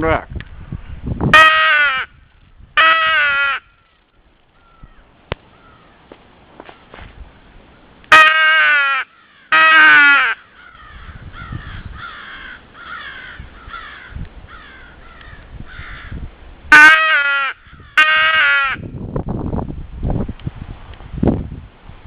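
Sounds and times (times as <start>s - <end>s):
wind rumble on microphone: 0.0s - 5.8s, 6.9s - 7.7s, 10.6s - 16.8s, 17.6s - 22.0s
wild crows cawing: 1.5s - 2.1s, 2.8s - 6.9s, 8.1s - 16.2s, 16.9s - 18.9s
crow call caws: 2.8s - 6.0s, 8.2s - 16.2s, 16.9s - 18.8s.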